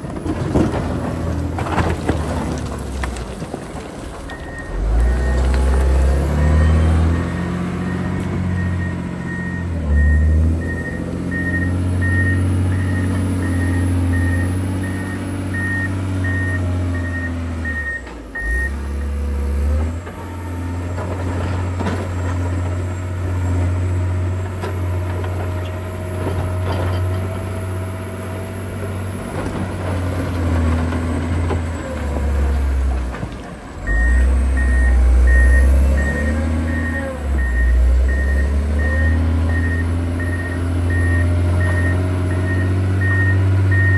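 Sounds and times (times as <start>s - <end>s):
diesel engine running: 0.0s - 43.9s
reversing alarm beeping: 4.3s - 18.8s, 33.8s - 43.9s.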